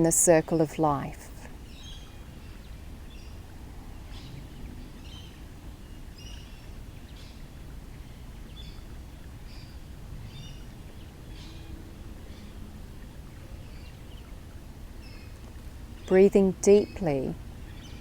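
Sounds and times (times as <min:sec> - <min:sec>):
low steady rumble: 0:00.0 - 0:18.0
birds chirping: 0:04.1 - 0:18.0.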